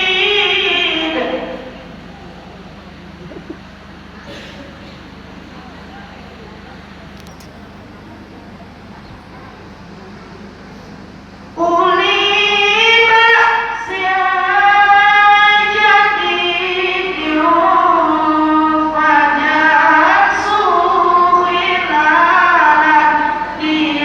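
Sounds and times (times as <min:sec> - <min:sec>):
girl reciting melodically: 0:00.0 - 0:01.9, 0:11.5 - 0:24.0.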